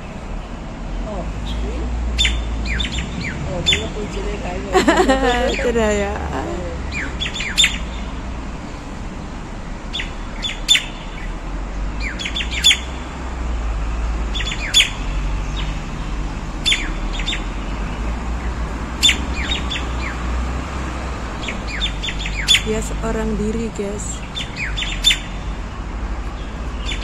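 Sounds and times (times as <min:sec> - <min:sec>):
bird sharp calls: 0:01.3 - 0:08.2, 0:09.9 - 0:11.4, 0:12.0 - 0:13.0, 0:14.3 - 0:20.3, 0:21.4 - 0:23.0, 0:24.1 - 0:27.0.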